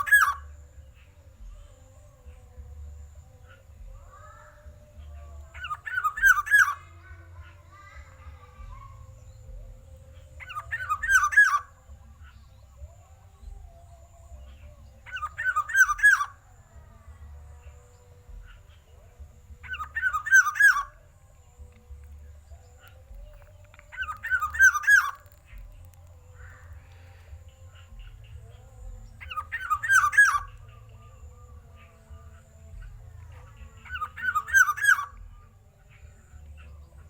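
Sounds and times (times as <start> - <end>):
bird calling loudly: 0.0 - 0.6, 5.6 - 7.0, 10.4 - 11.8, 15.1 - 16.4, 19.6 - 21.0, 22.9 - 28.3, 29.1 - 30.6, 33.8 - 35.3.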